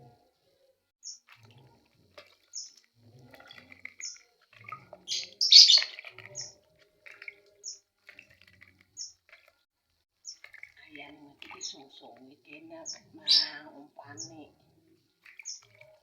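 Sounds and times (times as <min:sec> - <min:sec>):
bird chirping: 0:01.0 - 0:01.4, 0:02.4 - 0:02.9, 0:03.6 - 0:09.4, 0:10.2 - 0:16.0.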